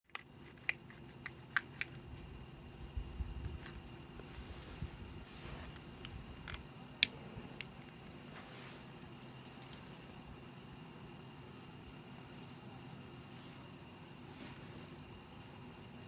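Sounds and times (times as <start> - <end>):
insects chirping: 0.1 - 16.0.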